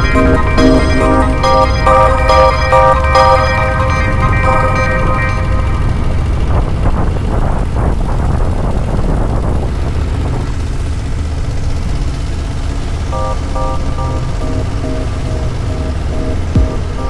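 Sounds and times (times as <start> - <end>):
motorcycle engine rumbling: 0.0 - 17.0
wind noise: 5.6 - 10.6.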